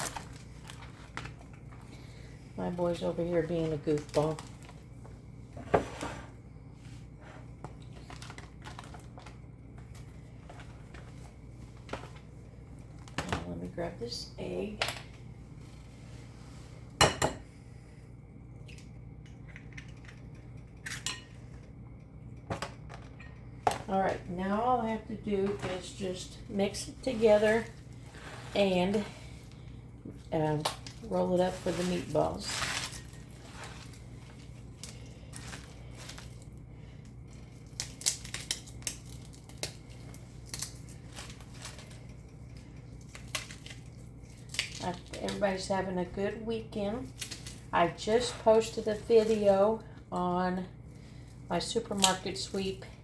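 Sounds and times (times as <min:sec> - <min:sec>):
steady low hum: 0:00.0 - 0:53.0
hands mixing food in bowl: 0:23.8 - 0:50.4
small clicks and crackles: 0:37.3 - 0:45.4.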